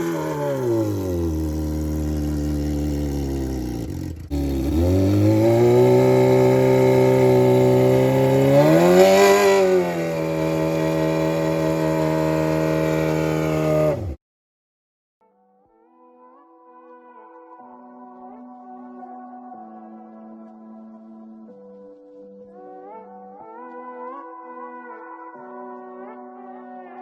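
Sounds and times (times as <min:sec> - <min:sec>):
motorcycle engine without exhaust: 0:00.0 - 0:14.2.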